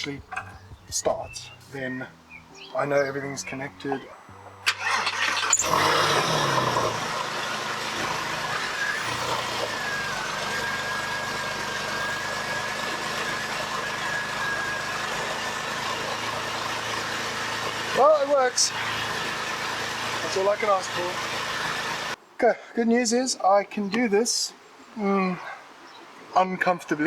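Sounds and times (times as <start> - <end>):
car engine starting and idling: 0.0 - 22.2
thin steady whistle: 8.5 - 16.4.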